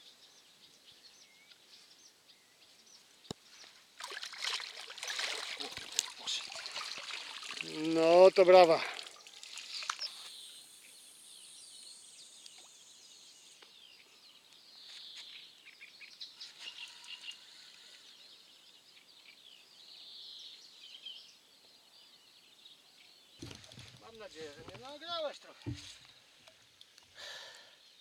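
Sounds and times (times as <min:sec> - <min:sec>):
birds chirping: 0:04.8 - 0:26.5.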